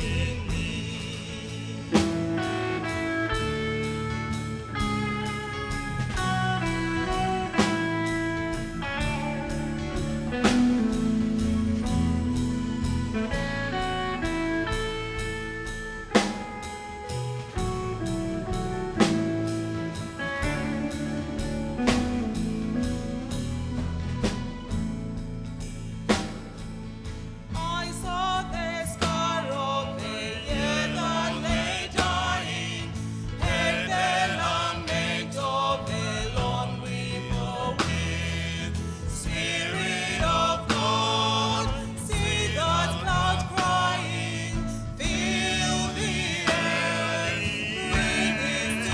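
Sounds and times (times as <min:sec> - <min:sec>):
band accompaniment with drums: 0:00.0 - 0:48.9
gospel choir singing: 0:00.0 - 0:48.9.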